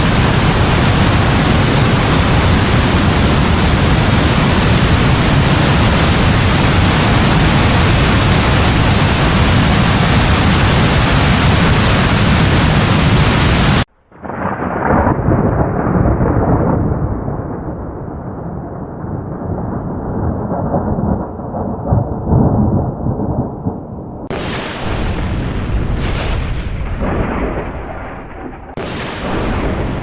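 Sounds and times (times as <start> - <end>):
heavy rain: 0.0 - 30.0
rolling thunder rumble: 0.0 - 30.0
sharp thunderclap: 0.0 - 30.0.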